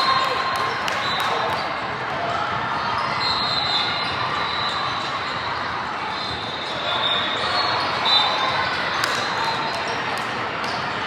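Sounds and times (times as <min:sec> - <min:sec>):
echoing crowd chatter: 0:00.0 - 0:11.0
sneakers squeaking: 0:02.8 - 0:11.0.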